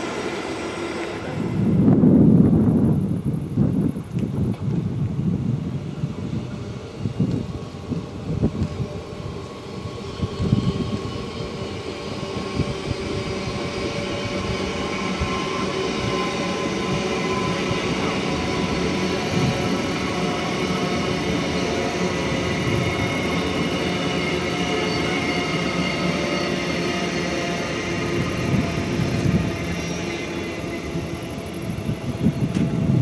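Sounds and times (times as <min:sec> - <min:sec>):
high-pitched whine: 0:00.0 - 0:03.7, 0:05.8 - 0:33.0
train rumbling on track: 0:00.0 - 0:33.0
train knocks: 0:10.4 - 0:33.0.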